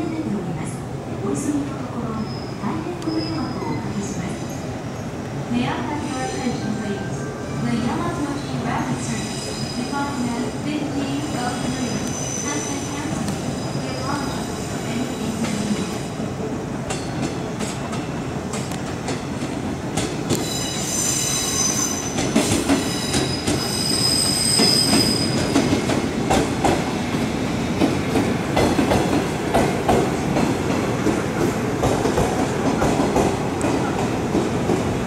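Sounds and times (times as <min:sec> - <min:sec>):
train cars rumbling: 0:07.8 - 0:35.0
high wheel squeal: 0:11.9 - 0:15.6, 0:20.4 - 0:25.7.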